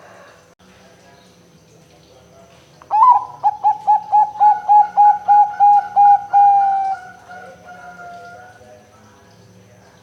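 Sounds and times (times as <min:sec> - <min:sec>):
dove cooing: 0:02.9 - 0:08.6.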